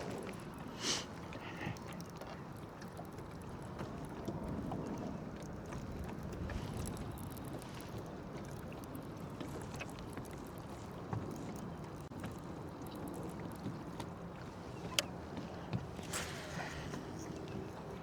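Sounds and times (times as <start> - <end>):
wind and water rumble: 0.0 - 18.0
faint clicks: 14.7 - 17.5.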